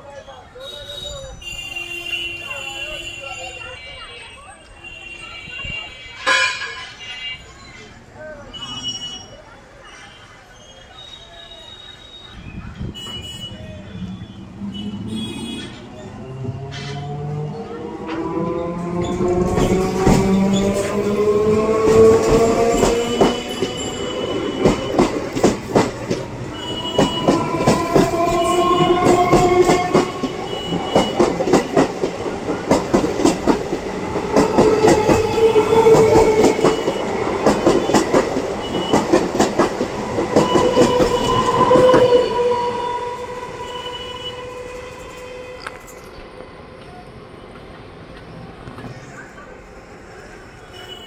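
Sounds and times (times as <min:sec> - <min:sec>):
train whining tone: 0:10.8 - 0:47.9
train wheels clacking over rail joints: 0:18.1 - 0:42.2.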